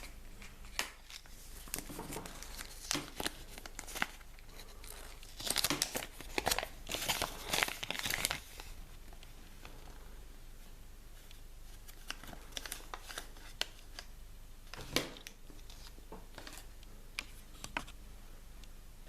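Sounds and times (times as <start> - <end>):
wrapper crinkling: 0.0 - 9.2.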